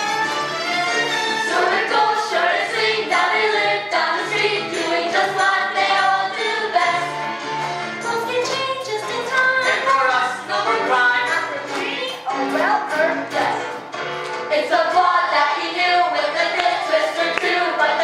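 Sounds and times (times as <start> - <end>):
musical accompaniment: 0.0 - 18.0
group of young people singing: 1.5 - 7.3, 8.1 - 13.7, 14.5 - 18.0.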